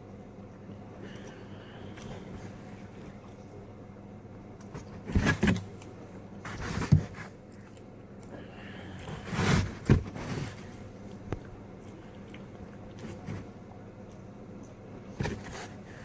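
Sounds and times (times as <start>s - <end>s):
person chewing food: 1.0s - 3.6s, 7.3s - 9.2s, 10.6s - 14.8s.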